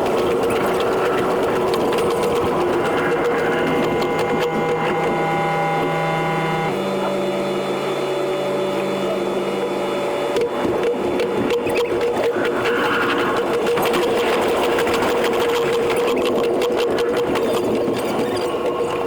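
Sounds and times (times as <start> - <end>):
sped-up electric train buzz: 0.0 - 13.9
steady tones: 0.0 - 15.2.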